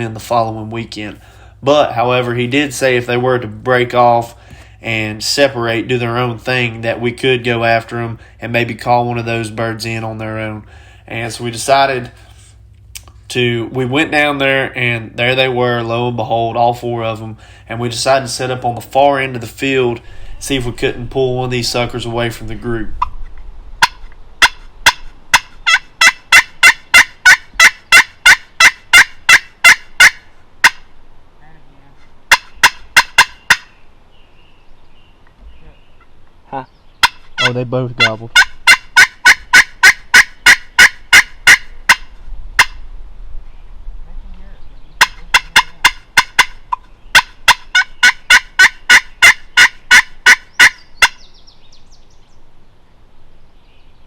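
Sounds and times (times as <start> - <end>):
turkey call yelps: 23.8 - 30.9, 32.3 - 33.8, 35.6 - 42.8, 44.9 - 51.6.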